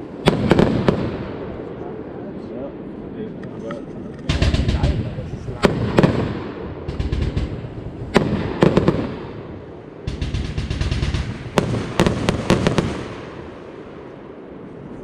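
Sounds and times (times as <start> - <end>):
firework battery bangs: 4.3 - 13.8
firework crackling: 4.3 - 14.9.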